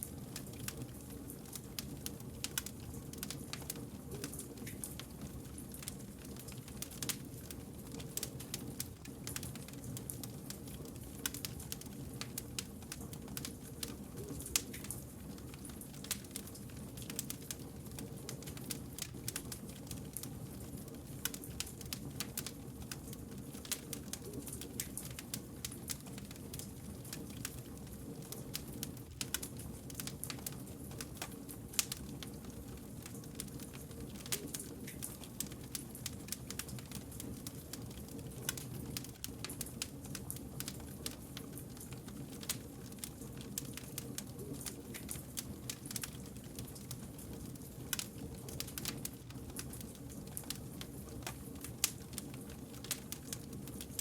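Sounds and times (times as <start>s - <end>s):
low rumble of burning logs: 0.0s - 54.0s
wood fire crackling: 0.0s - 54.0s.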